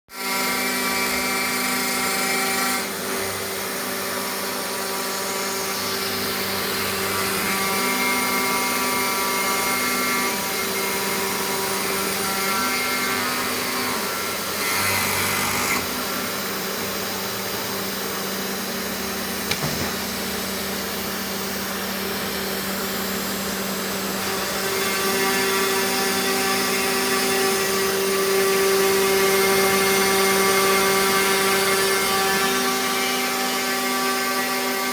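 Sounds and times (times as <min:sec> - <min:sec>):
end mill cutting plywood: 0:00.2 - 0:20.6
cnc spindle whine: 0:00.2 - 0:34.9.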